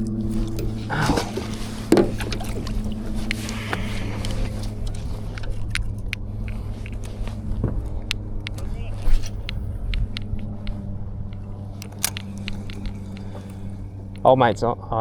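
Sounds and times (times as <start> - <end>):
light clicks: 0.0 - 14.5
boat motor humming: 0.0 - 15.0.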